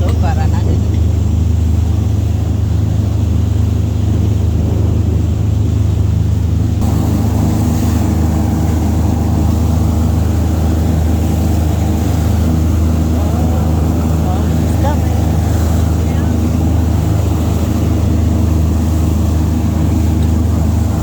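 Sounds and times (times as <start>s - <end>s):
motor engine droning: 0.0s - 21.0s.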